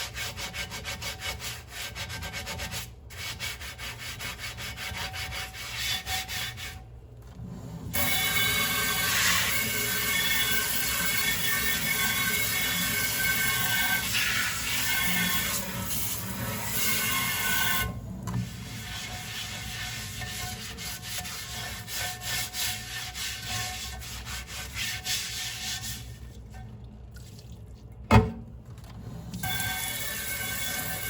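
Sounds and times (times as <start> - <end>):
sponge scrubbing dishes: 0.0 - 6.9, 7.9 - 27.8
dish set down with a clunk: 28.1 - 28.5.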